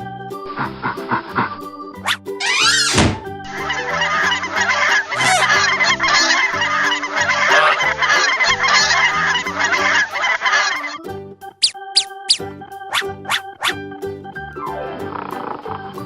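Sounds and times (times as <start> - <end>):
background music: 0.0 - 16.0
geese honking: 2.4 - 11.0.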